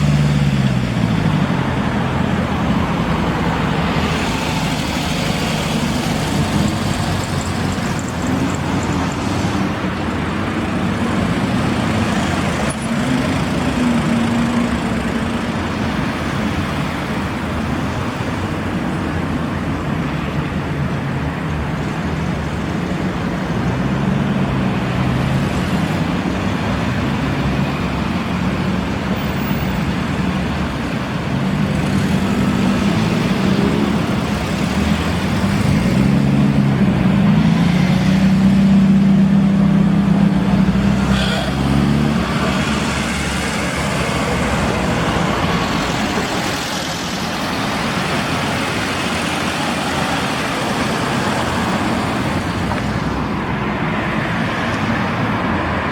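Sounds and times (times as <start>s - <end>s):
cars driving past: 0.0s - 55.9s
road noise: 0.0s - 55.9s.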